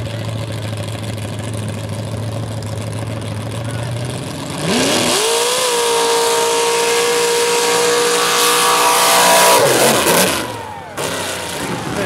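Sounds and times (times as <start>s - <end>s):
engine revving at full throttle: 2.8s - 12.0s
loud rushing noise: 5.2s - 12.0s.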